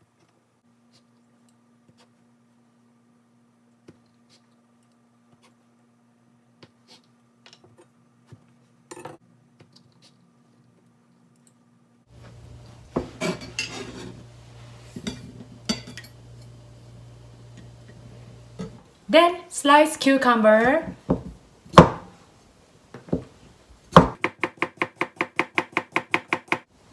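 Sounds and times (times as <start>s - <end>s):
metal utensils clinking: 12.2s - 16.6s.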